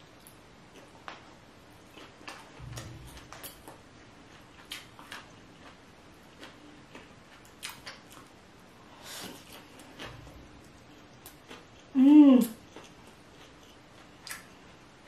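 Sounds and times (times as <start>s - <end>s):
wet chewing clicks: 6.4s - 8.3s, 9.4s - 14.6s.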